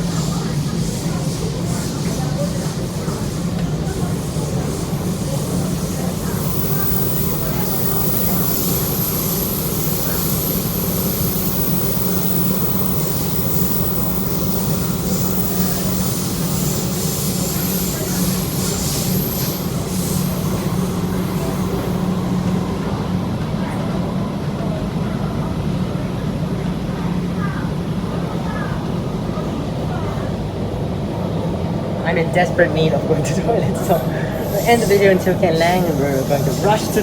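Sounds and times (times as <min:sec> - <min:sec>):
metro train rumble and hum: 0:00.0 - 0:37.0
hiss: 0:00.1 - 0:22.2, 0:33.8 - 0:37.0.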